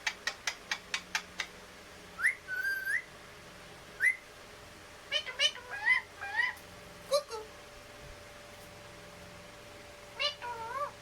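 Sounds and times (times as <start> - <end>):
parrot chirping: 2.2 - 3.1, 4.0 - 4.3, 5.1 - 7.5, 10.2 - 11.0
parrot whistling: 2.2 - 3.1, 4.0 - 4.2.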